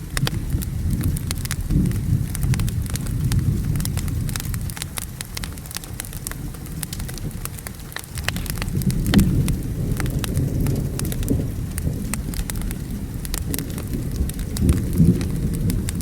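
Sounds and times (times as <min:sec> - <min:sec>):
low thunder rumble: 0:00.0 - 0:16.0
steady rain: 0:00.0 - 0:16.0
wood fire crackling: 0:00.0 - 0:16.0.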